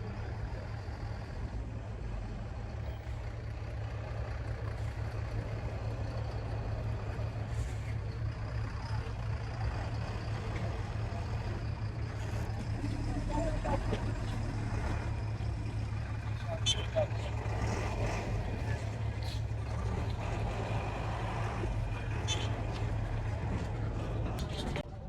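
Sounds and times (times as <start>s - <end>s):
diesel truck engines rumbling: 0.0s - 25.0s.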